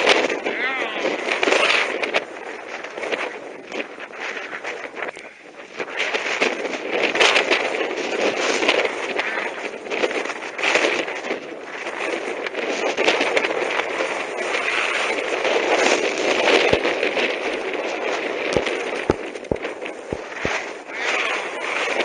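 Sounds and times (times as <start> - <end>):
wind buffeting microphone: 0.0 - 22.0
skis scraping over snow: 12.6 - 22.0.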